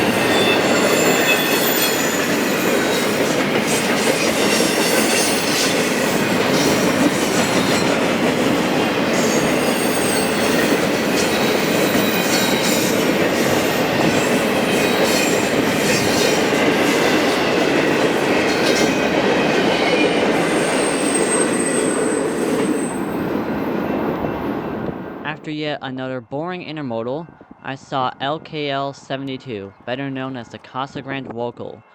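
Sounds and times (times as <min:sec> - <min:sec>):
faint high wheel squeal: 0:00.0 - 0:02.7, 0:09.2 - 0:10.7, 0:20.4 - 0:23.2
freight train rumbling: 0:00.0 - 0:25.4.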